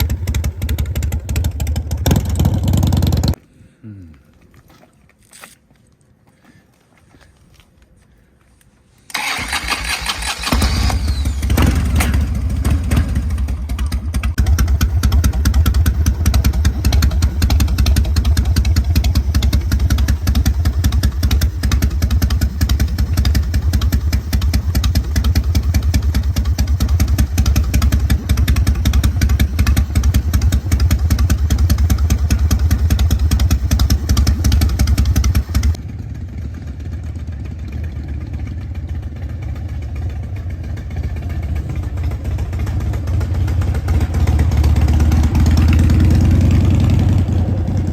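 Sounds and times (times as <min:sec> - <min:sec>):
motorcycle engine idling: 0:00.0 - 0:03.4, 0:10.3 - 0:47.9
motorcycle starter cranking: 0:09.1 - 0:12.8.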